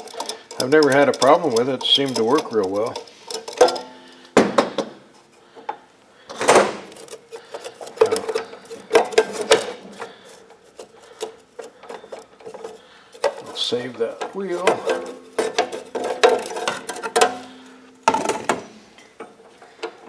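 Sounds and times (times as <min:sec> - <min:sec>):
metal parts clanking: 0:00.0 - 0:04.0, 0:06.3 - 0:18.7
metal scrape: 0:06.7 - 0:18.9.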